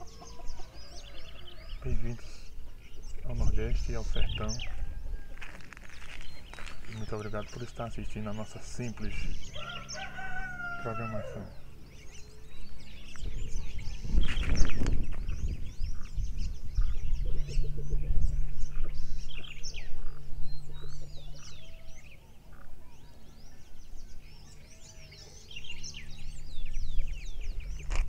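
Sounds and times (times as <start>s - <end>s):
birds chirping and calling: 0.0s - 28.0s
steady low hum: 0.0s - 28.0s
low rumble: 11.4s - 24.8s.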